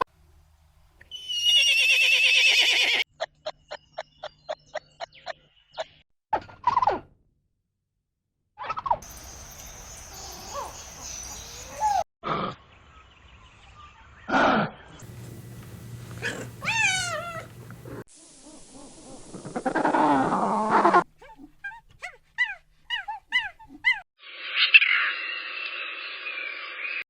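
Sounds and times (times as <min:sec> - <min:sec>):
farm animal calls: 0:15.0 - 0:18.0.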